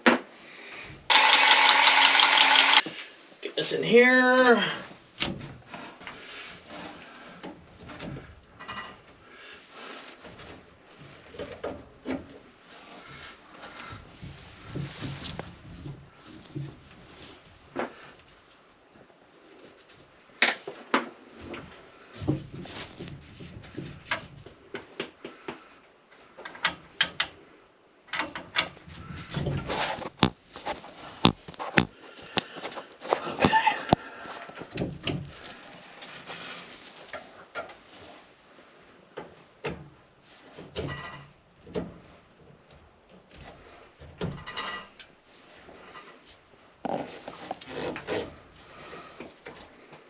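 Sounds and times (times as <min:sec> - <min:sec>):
scraping rustle: 0:05.4 - 0:18.7, 0:28.8 - 0:39.0, 0:42.0 - 0:50.0
plumbing parts clicking and knocking: 0:28.1 - 0:36.2, 0:39.1 - 0:45.2
tools and pipe fittings clicking: 0:40.8 - 0:45.2, 0:46.9 - 0:48.3.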